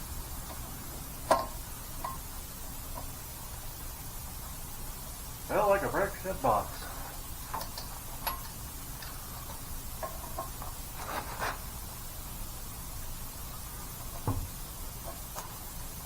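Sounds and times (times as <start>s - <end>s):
steady low hum: 0.0s - 16.0s
dull knock: 14.2s - 14.5s.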